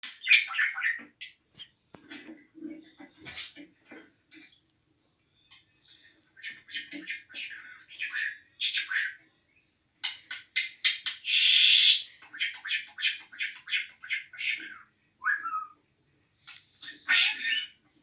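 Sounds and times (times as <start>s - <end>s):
bird chirping and squawking: 0.0s - 1.7s, 2.9s - 3.7s, 5.5s - 9.3s, 10.0s - 15.8s, 16.7s - 18.0s.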